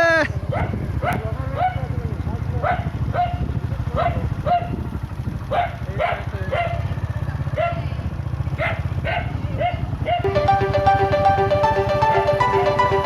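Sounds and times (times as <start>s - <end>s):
dog barking: 0.5s - 2.0s, 2.6s - 4.8s, 5.5s - 7.9s, 8.5s - 10.3s.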